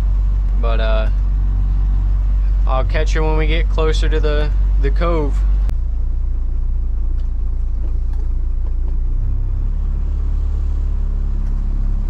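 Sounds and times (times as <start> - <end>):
boat engine droning: 0.0 - 5.7.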